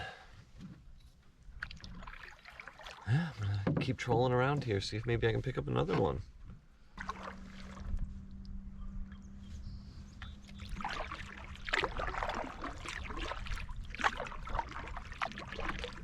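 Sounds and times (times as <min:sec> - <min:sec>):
paddle splashing in water: 0:01.4 - 0:03.8, 0:06.9 - 0:08.5, 0:10.2 - 0:16.0
water dripping: 0:10.2 - 0:16.0.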